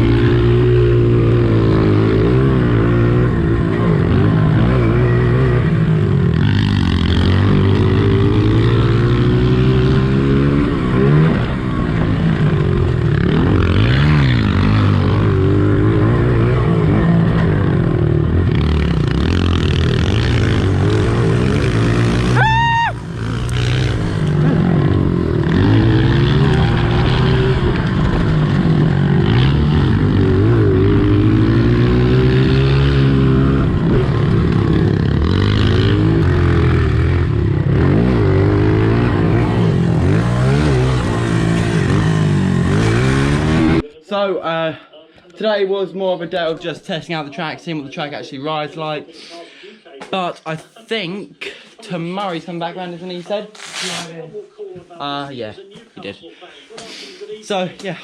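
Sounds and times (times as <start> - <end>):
motorbike engine revving: 0.0 - 43.9.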